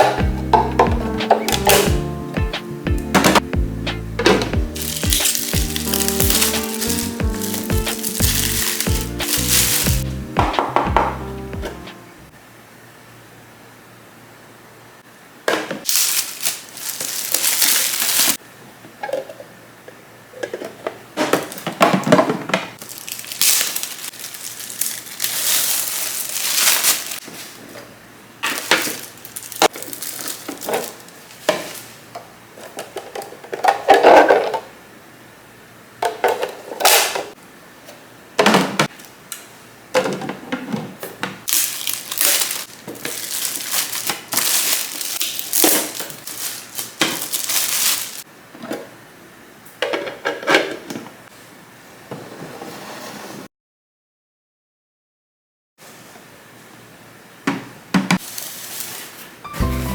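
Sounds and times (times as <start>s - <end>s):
plastic containers clattering: 0.0s - 1.9s, 4.2s - 11.1s, 20.3s - 34.8s, 36.0s - 37.3s, 38.4s - 39.0s, 39.9s - 48.9s, 49.8s - 51.1s
plastic packaging crinkling: 4.7s - 10.1s, 15.9s - 18.4s, 22.8s - 27.7s, 28.4s - 31.9s, 41.5s - 48.2s.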